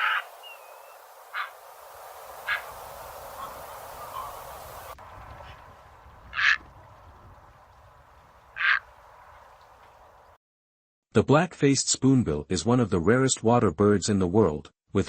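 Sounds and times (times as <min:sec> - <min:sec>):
steady background hiss: 0:00.0 - 0:05.0.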